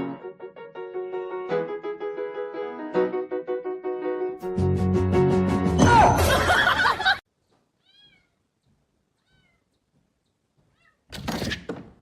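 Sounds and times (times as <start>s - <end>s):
cat meowing: 7.8s - 8.5s, 9.2s - 9.8s, 10.7s - 11.1s.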